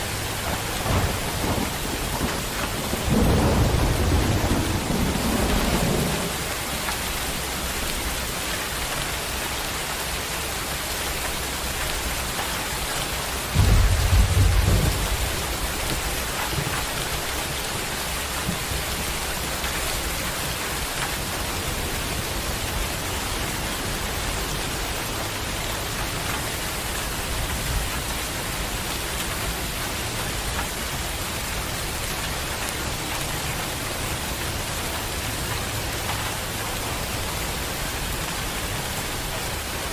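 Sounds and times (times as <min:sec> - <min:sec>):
thunder rumble: 0:00.0 - 0:07.9, 0:13.1 - 0:37.2
heavy rain falling: 0:00.0 - 0:39.9.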